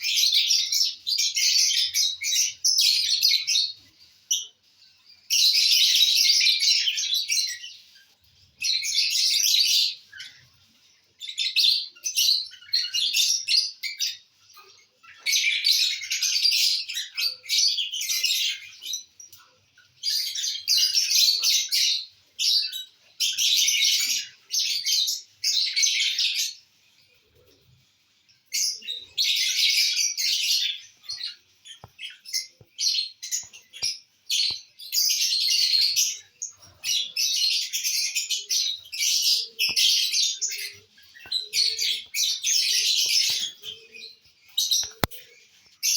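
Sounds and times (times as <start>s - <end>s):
lovebirds chirping: 0.0s - 45.9s.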